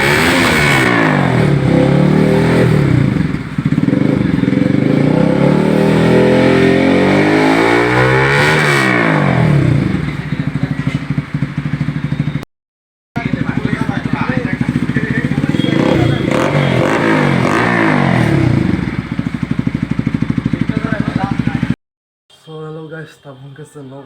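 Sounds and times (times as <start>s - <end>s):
motorcycle engine revving: 0.0s - 12.5s, 13.2s - 21.8s.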